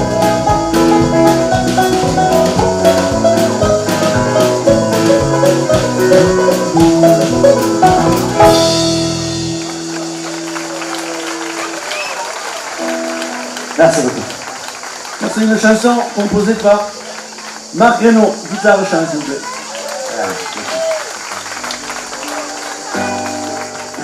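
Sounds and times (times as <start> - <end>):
drums keeping a steady beat: 0.0 - 11.6
country rock band playing: 0.0 - 15.4.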